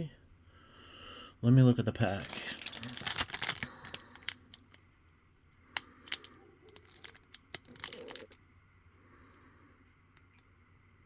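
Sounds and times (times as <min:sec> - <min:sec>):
foil wrapper crinkling: 0:02.0 - 0:04.8, 0:06.0 - 0:08.4.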